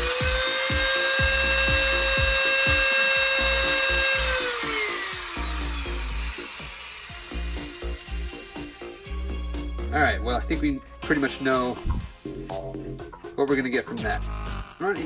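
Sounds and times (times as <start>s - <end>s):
electric drill whining: 0.0s - 11.8s.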